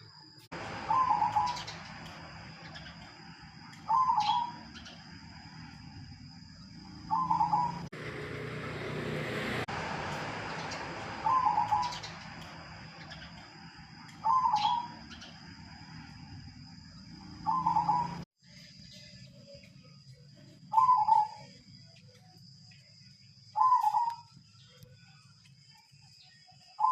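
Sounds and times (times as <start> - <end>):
dove cooing: 0.7 - 1.9, 3.9 - 4.6, 7.0 - 7.9, 11.1 - 12.2, 14.2 - 15.0, 17.4 - 18.2, 20.7 - 21.4, 23.6 - 24.2.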